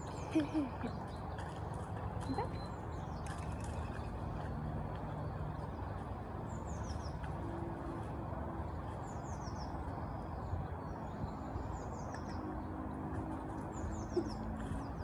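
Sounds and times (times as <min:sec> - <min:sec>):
low outdoor background noise: 0:00.0 - 0:15.0
songbirds chirping: 0:00.0 - 0:15.0.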